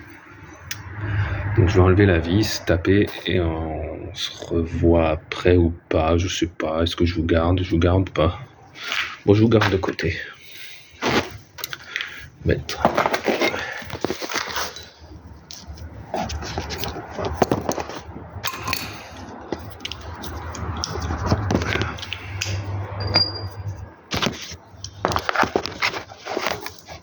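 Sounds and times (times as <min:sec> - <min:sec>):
metal tools clinking and scraping: 0:11.2 - 0:11.9, 0:12.7 - 0:21.0, 0:21.6 - 0:27.0.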